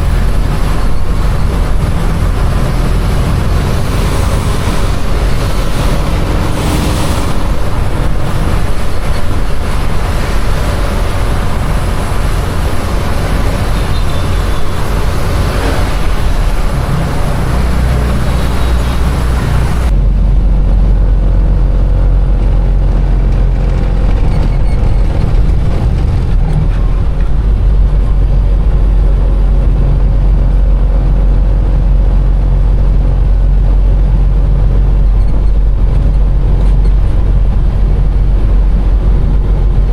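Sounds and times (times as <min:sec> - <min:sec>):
heavy rain hissing: 0:00.0 - 0:19.9
truck engine and road rumble: 0:00.0 - 0:39.9.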